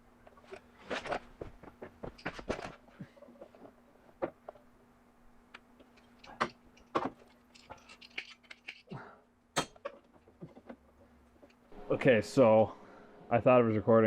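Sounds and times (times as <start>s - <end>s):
faint steady hum: 0.0s - 14.0s
parts and tools clicking and tapping: 5.5s - 8.9s, 9.6s - 11.6s.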